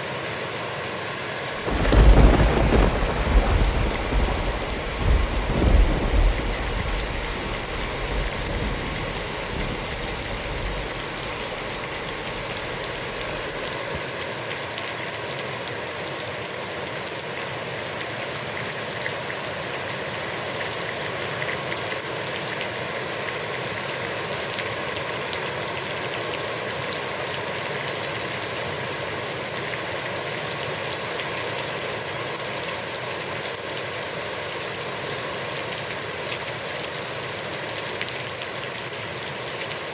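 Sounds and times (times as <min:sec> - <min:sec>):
heavy rain on a pond: 0:00.0 - 0:39.9
low thunder rumble: 0:01.6 - 0:14.0.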